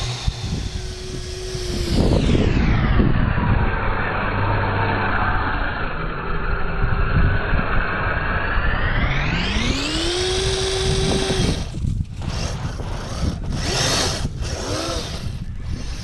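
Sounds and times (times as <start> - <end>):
rough rumble of tracks: 0.0 - 1.9
electric motor and gear whine: 0.0 - 16.0.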